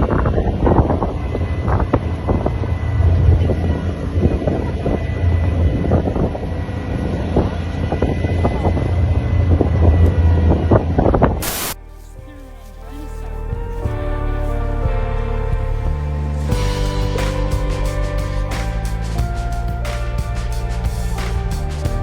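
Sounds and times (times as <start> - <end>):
vehicle low rumble: 11.8 - 22.0.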